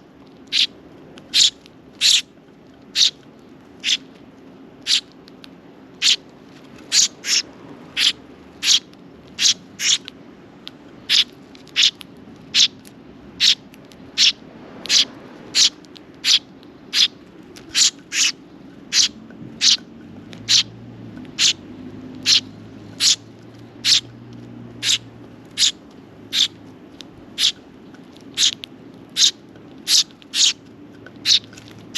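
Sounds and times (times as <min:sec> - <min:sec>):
sparrow chirping: 0:00.5 - 0:02.3, 0:02.9 - 0:03.2, 0:03.8 - 0:04.1, 0:04.8 - 0:05.1, 0:06.0 - 0:06.2, 0:06.8 - 0:10.1, 0:11.0 - 0:12.8, 0:13.4 - 0:21.6, 0:22.2 - 0:24.2, 0:24.8 - 0:26.6, 0:27.3 - 0:27.6, 0:28.3 - 0:30.6, 0:31.2 - 0:31.6.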